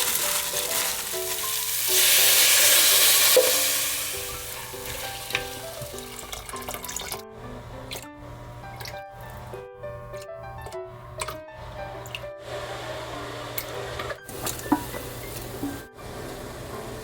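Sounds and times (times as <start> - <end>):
food sizzling in hot oil: 0.0 - 6.6
soft background music: 0.0 - 17.0.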